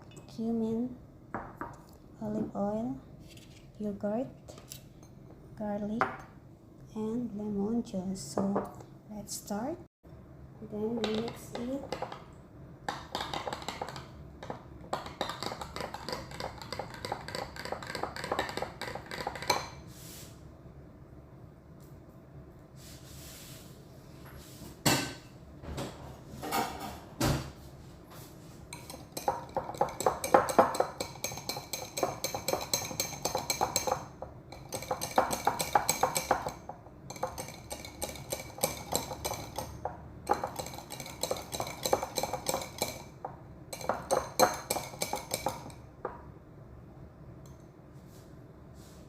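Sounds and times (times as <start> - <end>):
spoon clinking and scraping bowl: 13.1 - 19.8, 28.7 - 45.8
spoon knocking against bowl: 28.8 - 46.2.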